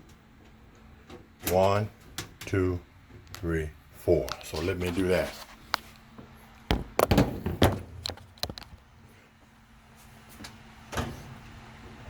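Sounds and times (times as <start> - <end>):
knocks on metal cabinet: 6.7 - 8.0.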